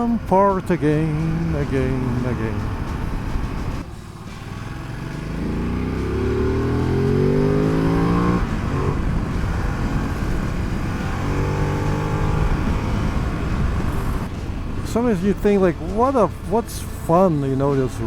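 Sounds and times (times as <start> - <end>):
motorcycle engine accelerating: 0.8 - 14.3.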